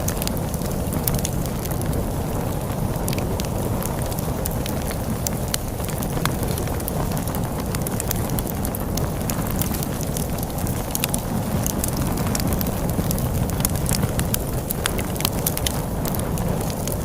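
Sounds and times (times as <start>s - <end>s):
storm wind rumble: 0.0s - 17.0s
wood fire crackling and popping: 0.0s - 17.0s.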